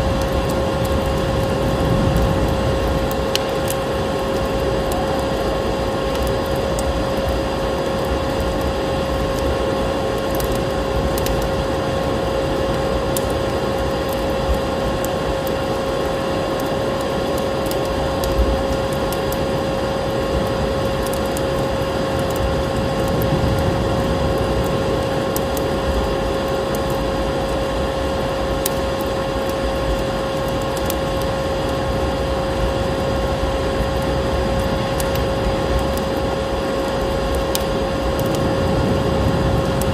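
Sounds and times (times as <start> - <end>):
rushing wind noise: 0.0 - 4.3, 19.7 - 27.3, 31.3 - 39.9
fire crackles: 0.0 - 39.9.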